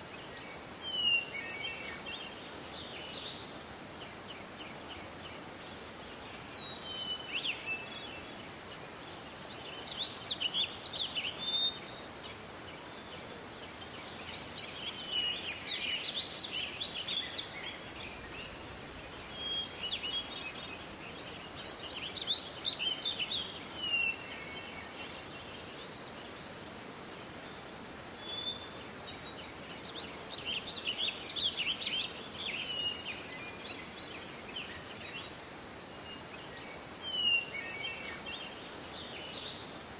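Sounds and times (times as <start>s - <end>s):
faint hiss: 0.0s - 39.9s
songbird twittering: 0.4s - 5.1s, 12.9s - 26.3s, 35.9s - 39.8s.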